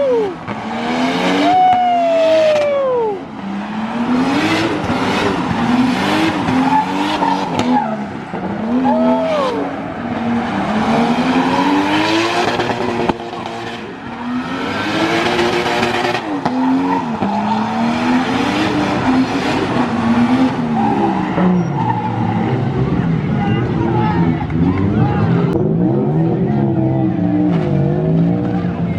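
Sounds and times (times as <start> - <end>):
car engine revving hard: 0.3 - 1.6, 3.4 - 23.3.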